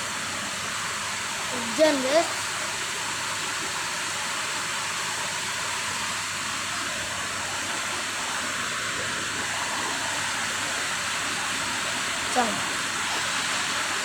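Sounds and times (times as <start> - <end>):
rain falling steadily: 0.0 - 14.0.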